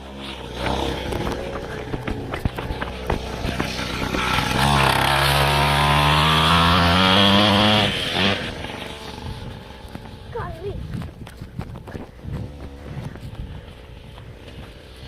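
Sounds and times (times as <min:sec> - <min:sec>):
motocross bike engine revving: 0:00.0 - 0:10.9.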